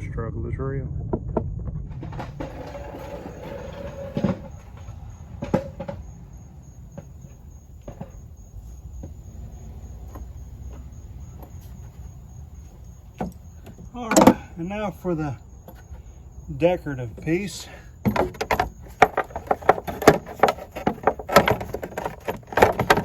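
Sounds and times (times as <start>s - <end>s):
sharp knocks and clicks: 1.4s - 14.5s, 18.0s - 23.0s
parts scraping and handling: 1.9s - 23.0s.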